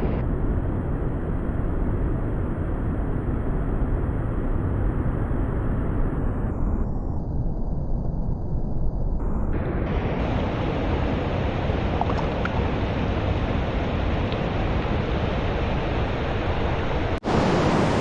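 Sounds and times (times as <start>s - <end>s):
stream water flowing: 10.2s - 18.0s.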